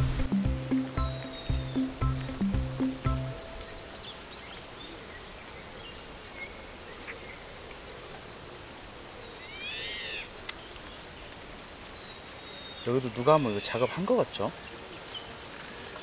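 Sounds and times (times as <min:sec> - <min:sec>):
bird call rising and falling: 0:00.0 - 0:04.6.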